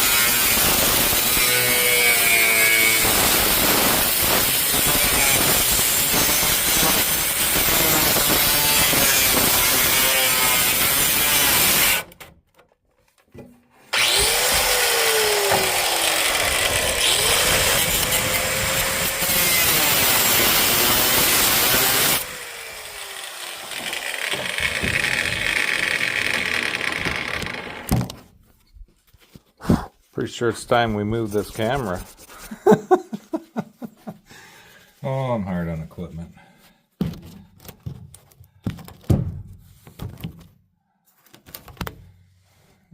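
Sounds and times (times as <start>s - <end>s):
power tool cutting sheet metal: 0.0s - 12.2s, 13.9s - 28.0s.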